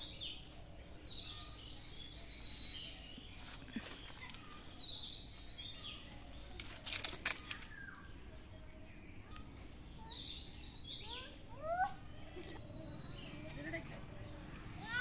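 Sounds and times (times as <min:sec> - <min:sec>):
bird chirping: 0:00.0 - 0:06.6, 0:07.4 - 0:15.0.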